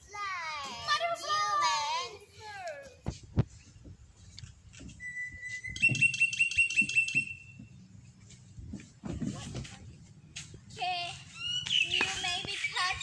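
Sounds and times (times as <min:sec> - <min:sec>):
bird whistling and calling: 0:05.0 - 0:07.8, 0:11.3 - 0:13.0.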